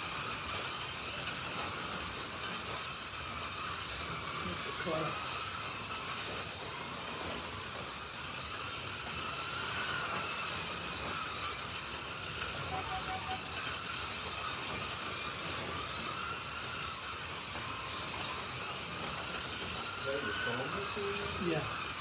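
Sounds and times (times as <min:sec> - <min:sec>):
slot car motors whining: 0:00.0 - 0:22.0
short beeps: 0:12.7 - 0:13.6.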